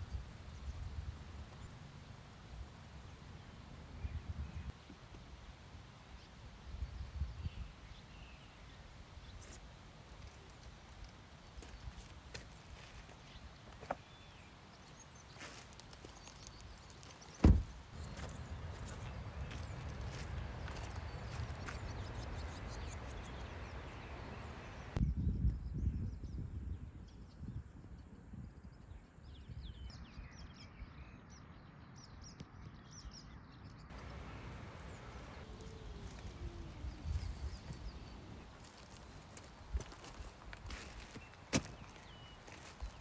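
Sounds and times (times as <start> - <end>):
small birds chirping: 0.0 - 25.0, 33.9 - 43.0
low wind rumble: 0.0 - 29.9, 33.9 - 43.0
heavy low thump: 17.4 - 20.8
steady low rumbling: 17.5 - 25.0
steady hiss: 33.9 - 43.0.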